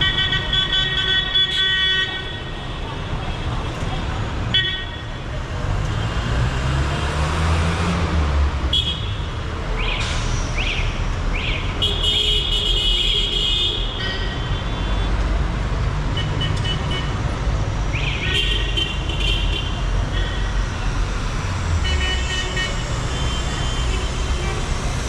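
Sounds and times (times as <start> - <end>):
car horns honking: 0.0 - 2.6
traffic engines and tyres: 0.0 - 25.0.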